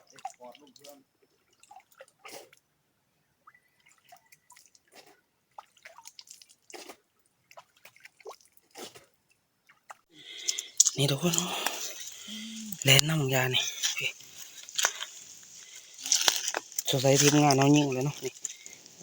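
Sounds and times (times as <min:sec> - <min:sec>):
faint drips and taps: 0:00.0 - 0:02.6, 0:03.7 - 0:06.8, 0:09.3 - 0:13.1, 0:13.8 - 0:19.0.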